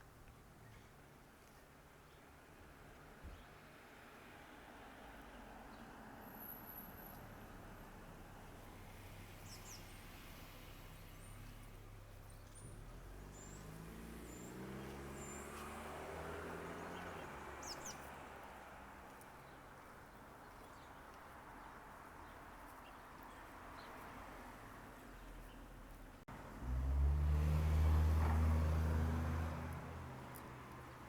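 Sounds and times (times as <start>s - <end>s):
vehicle passing: 12.6s - 19.0s, 26.3s - 31.0s.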